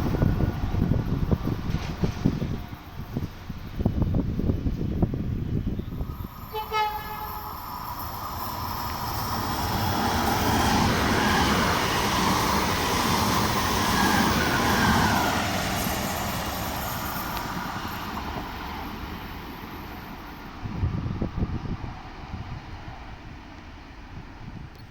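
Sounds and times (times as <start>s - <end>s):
train passing: 0.0s - 24.9s
train horn blast: 6.4s - 7.6s.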